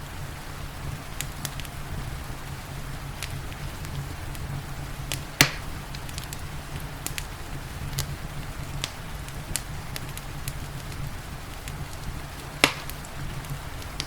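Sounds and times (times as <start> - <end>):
wood fire crackling: 0.0 - 14.0
loud snap of fire: 1.1 - 1.8, 2.6 - 14.0.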